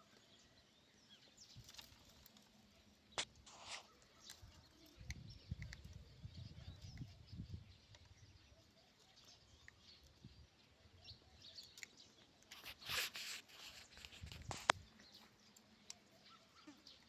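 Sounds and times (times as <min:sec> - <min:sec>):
rustle: 0:00.0 - 0:05.1, 0:11.4 - 0:17.0
faint bird chirps: 0:00.0 - 0:17.0.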